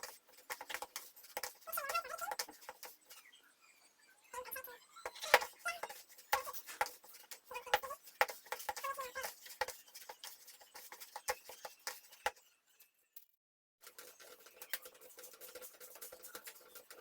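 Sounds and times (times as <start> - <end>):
hands kneading sticky dough: 0.0 - 3.1, 5.3 - 12.4.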